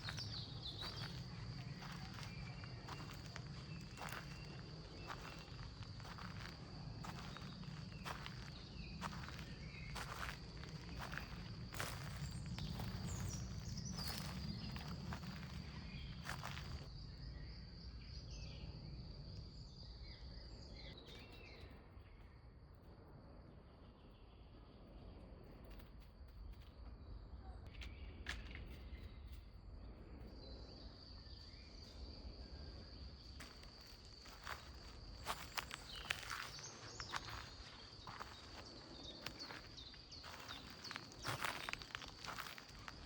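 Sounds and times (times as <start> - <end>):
footsteps: 0.0 - 16.9, 33.4 - 43.0.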